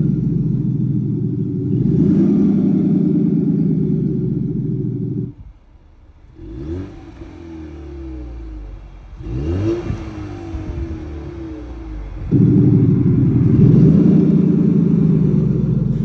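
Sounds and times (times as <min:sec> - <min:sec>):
car engine revving: 0:00.0 - 0:16.0
loud low rumble: 0:10.0 - 0:16.0.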